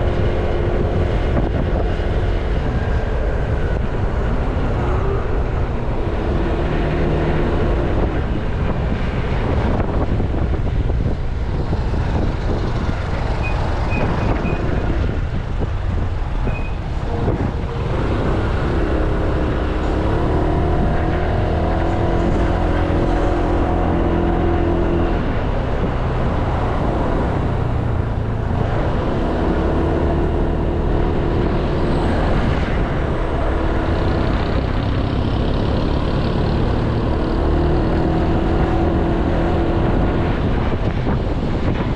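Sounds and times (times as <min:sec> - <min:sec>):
road traffic: 0:00.0 - 0:41.9
wind rushing over microphone: 0:00.0 - 0:41.9
scooter engine humming: 0:12.1 - 0:31.3.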